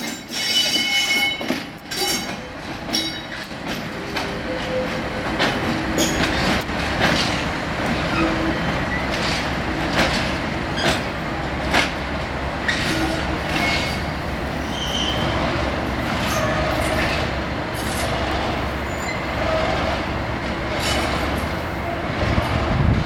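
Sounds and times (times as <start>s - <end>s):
train wheels rumbling on rails: 0.0s - 23.0s
clicks over rail joints: 5.3s - 8.2s, 9.1s - 12.0s
wheel squeals: 12.7s - 15.4s, 16.2s - 18.1s, 18.9s - 19.8s.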